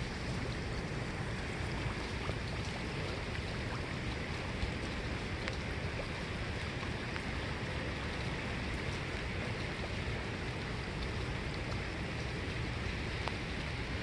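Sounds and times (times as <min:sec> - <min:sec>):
rain falling on water: 0:00.0 - 0:14.0
faint drop ticks: 0:13.2 - 0:13.4.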